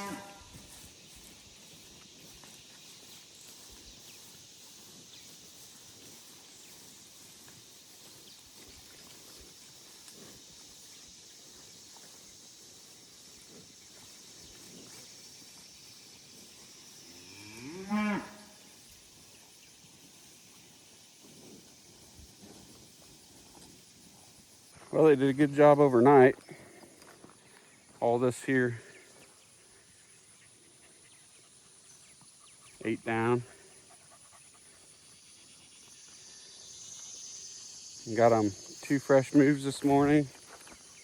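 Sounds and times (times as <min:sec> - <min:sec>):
cow mooing: 0:00.0 - 0:00.4, 0:17.2 - 0:18.5.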